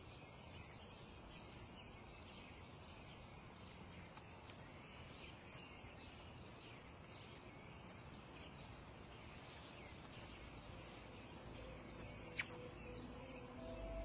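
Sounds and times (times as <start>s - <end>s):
small birds chirping: 0.0s - 14.0s
soft sustained music: 10.2s - 14.0s.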